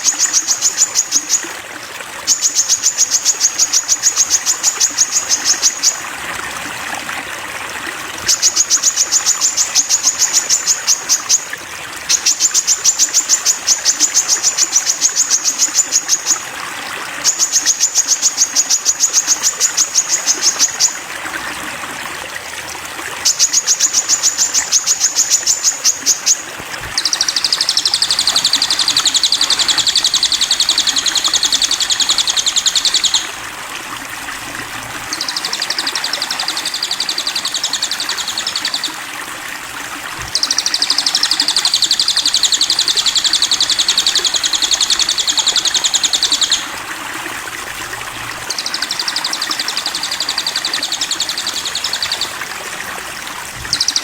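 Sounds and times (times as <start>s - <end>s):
bird trilling: 0.0s - 1.6s, 2.3s - 6.0s, 8.2s - 11.5s, 12.1s - 16.5s, 17.2s - 21.0s, 23.2s - 33.6s, 34.3s - 39.0s, 40.2s - 46.8s, 48.0s - 52.5s, 53.6s - 54.0s
running water: 0.0s - 54.0s.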